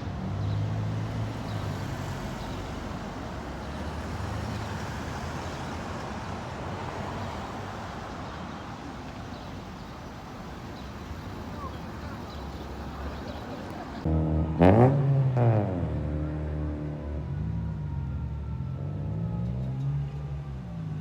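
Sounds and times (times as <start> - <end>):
traffic and tyre noise: 0.0 - 21.0
fire truck engine rumble: 16.0 - 21.0.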